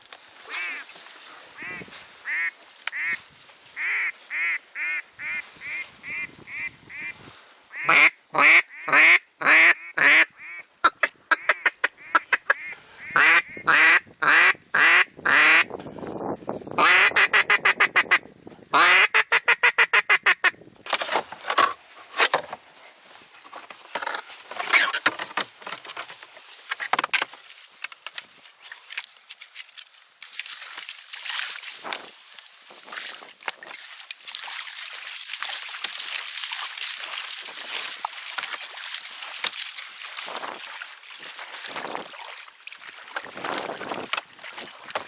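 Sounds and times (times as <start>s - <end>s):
duck quacking: 0.5s - 0.8s, 1.6s - 3.2s, 3.8s - 7.1s, 7.7s - 15.7s, 16.8s - 20.6s.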